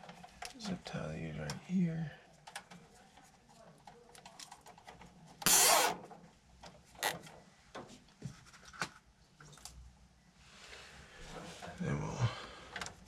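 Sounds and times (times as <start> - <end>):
wires clicking and rustling: 0.0 - 9.8
cable tie ratcheting zip: 5.4 - 6.0.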